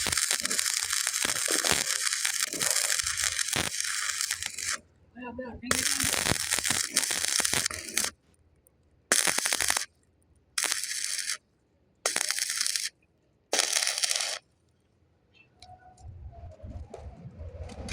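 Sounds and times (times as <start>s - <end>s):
welding arc crackling: 0.0s - 4.8s, 5.6s - 8.2s, 9.1s - 9.9s, 10.6s - 11.4s, 12.0s - 14.4s.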